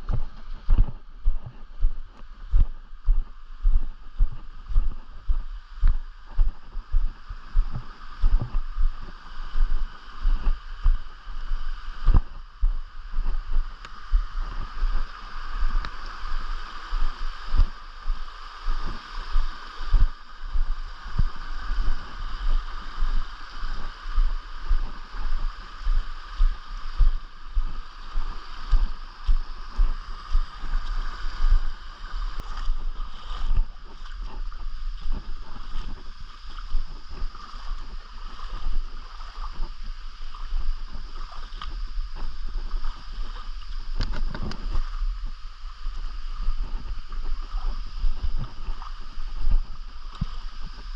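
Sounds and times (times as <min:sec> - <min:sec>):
low thumps on microphone: 0:00.0 - 0:15.9
stream water rushing: 0:01.9 - 0:50.9.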